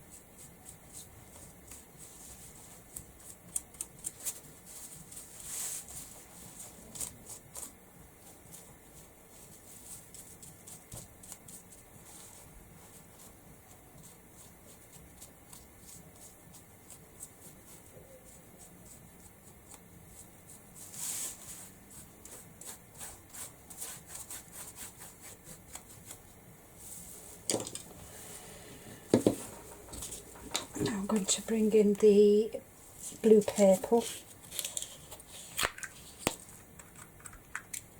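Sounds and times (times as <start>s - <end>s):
hands tapping and rubbing: 29.0s - 32.1s, 33.1s - 37.9s.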